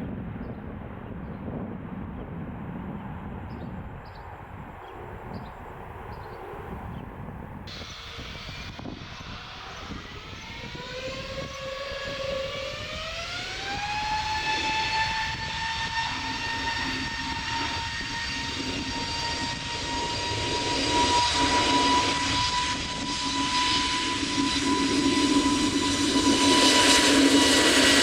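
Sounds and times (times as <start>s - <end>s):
jet engines spooling up: 4.8s - 28.0s.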